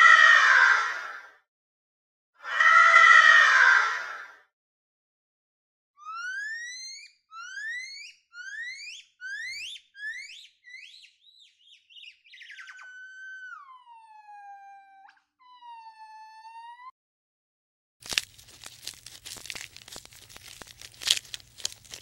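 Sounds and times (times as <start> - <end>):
animal whistling squeals: 6.0 - 16.9.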